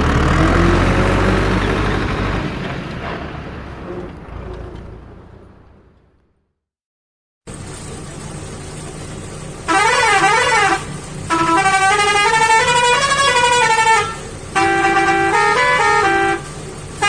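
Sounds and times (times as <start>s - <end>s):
engine hum: 0.0s - 6.6s, 7.5s - 17.0s
musical truck horn: 9.7s - 16.6s.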